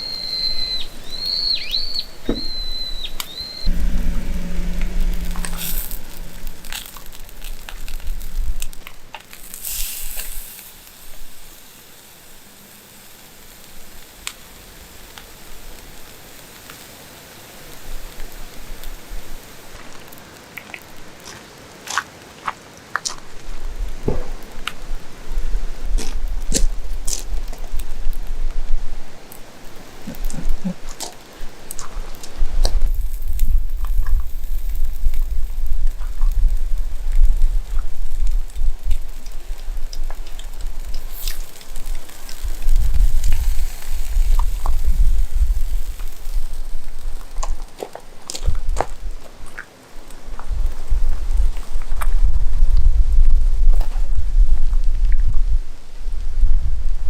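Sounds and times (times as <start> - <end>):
bird chirping: 0.0 - 6.3
low rumbling noise: 0.0 - 9.7, 32.4 - 47.4
campfire crackling and popping: 29.3 - 52.3.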